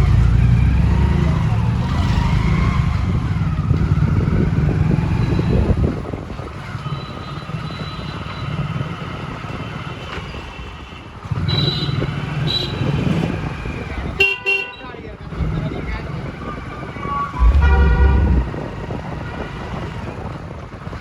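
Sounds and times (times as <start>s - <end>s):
vehicle engine and road rumble: 0.0s - 7.3s, 14.9s - 21.0s.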